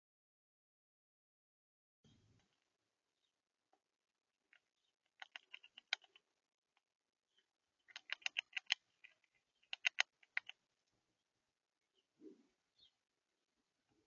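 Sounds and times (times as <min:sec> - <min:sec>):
bird beak tapping seed: 0:04.5 - 0:06.2, 0:07.8 - 0:10.6.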